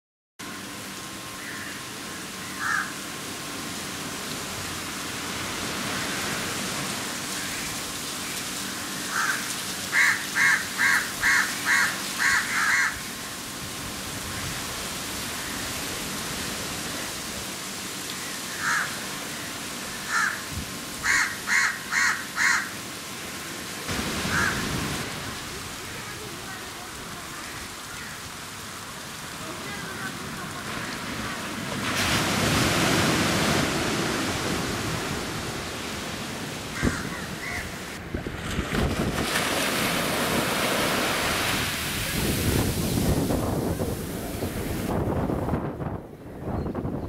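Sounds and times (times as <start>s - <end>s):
steady rushing hiss: 0.4s - 38.2s, 39.0s - 46.0s
bird harsh calls: 2.4s - 2.9s, 8.8s - 13.1s, 21.0s - 22.7s, 36.8s - 37.7s.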